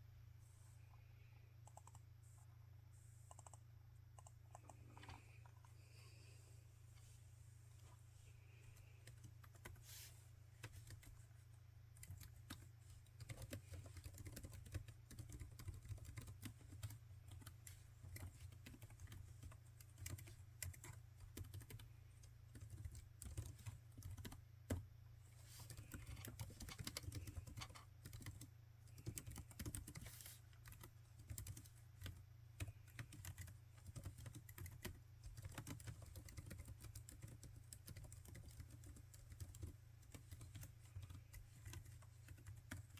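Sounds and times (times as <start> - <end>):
laptop keyboard typing: 1.6 - 2.4, 3.3 - 3.6, 4.2 - 5.5, 8.8 - 9.8, 10.6 - 11.2, 12.0 - 24.8, 25.6 - 42.9.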